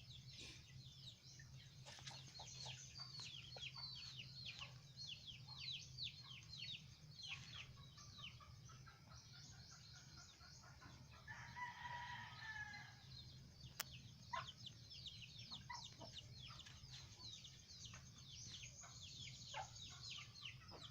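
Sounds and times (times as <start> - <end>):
chicks peeping: 0.0 - 11.5, 13.1 - 20.9
rooster crowing: 11.3 - 13.0.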